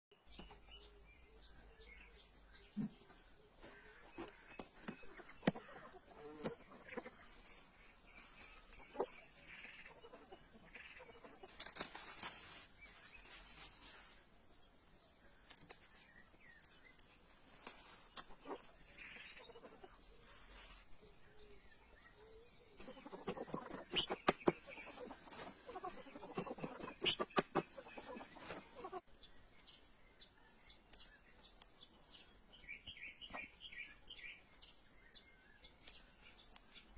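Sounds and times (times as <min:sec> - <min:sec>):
chickens clucking: 0:02.7 - 0:12.7, 0:18.0 - 0:29.2.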